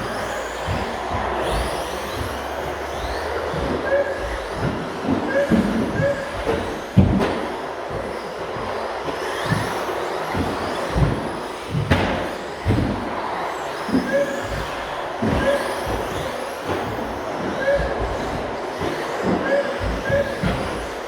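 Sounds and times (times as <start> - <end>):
remote control trucks motor whine: 0.0 - 21.0
thuds: 3.5 - 13.2, 13.9 - 20.9.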